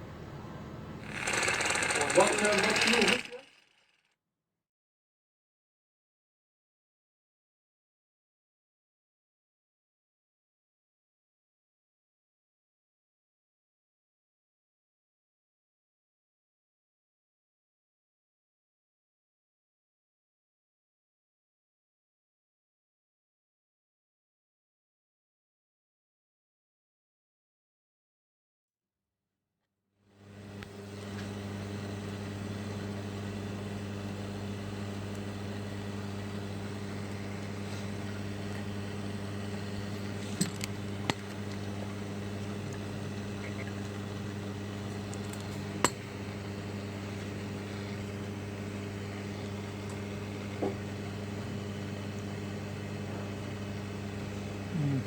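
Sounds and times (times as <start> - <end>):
tools clicking on work: 1.0 - 4.0
electrical hum with hiss: 30.2 - 55.0.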